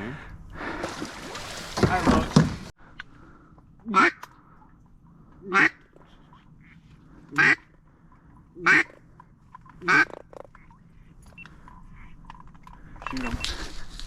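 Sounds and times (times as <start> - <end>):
duck quacks: 3.9 - 4.2, 5.4 - 5.8, 6.6 - 7.7, 8.6 - 9.0, 9.8 - 10.2.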